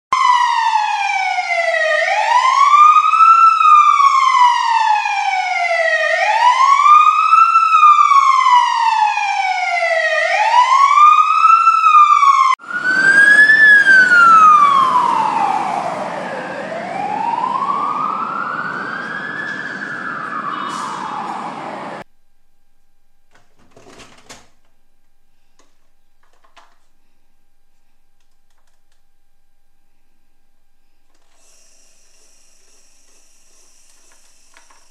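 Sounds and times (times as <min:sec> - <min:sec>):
fire truck siren wailing: 0:00.1 - 0:22.1
engine and road noise: 0:12.6 - 0:22.1.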